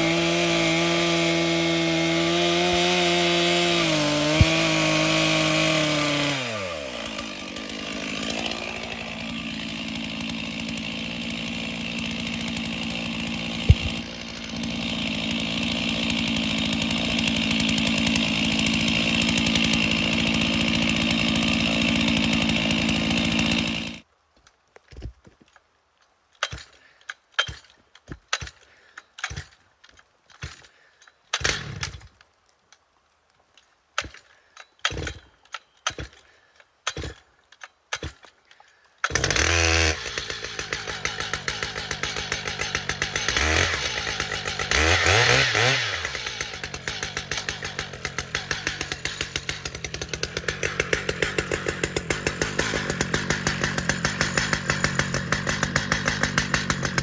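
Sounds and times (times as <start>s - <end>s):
chainsaw revving and running: 0.0s - 24.1s, 31.4s - 32.1s, 39.0s - 57.0s.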